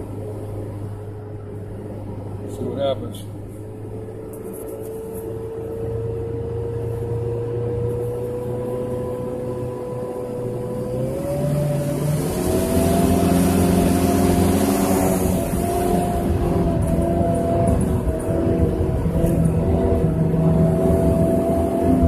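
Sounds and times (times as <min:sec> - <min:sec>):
truck engine revving: 0:04.4 - 0:22.0.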